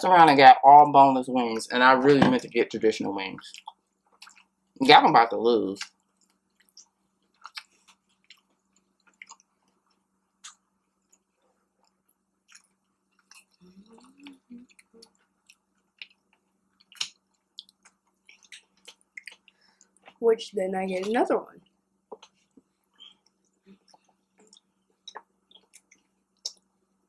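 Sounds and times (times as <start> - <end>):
chewing with mouth clicks: 3.4 - 4.5, 5.8 - 20.2, 21.6 - 26.7.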